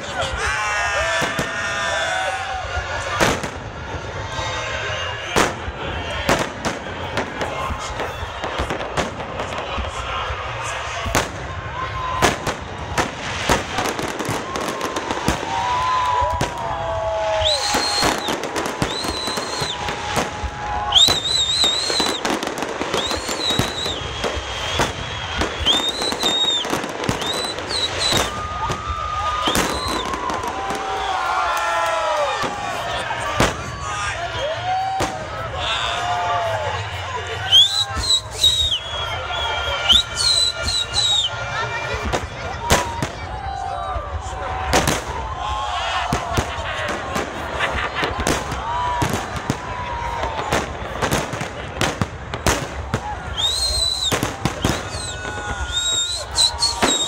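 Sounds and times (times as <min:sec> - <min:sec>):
fireworks bangs and crackling: 0:00.0 - 0:57.0
high wavering whistles: 0:20.9 - 0:22.3, 0:22.9 - 0:28.4, 0:37.5 - 0:41.3, 0:53.3 - 0:57.0.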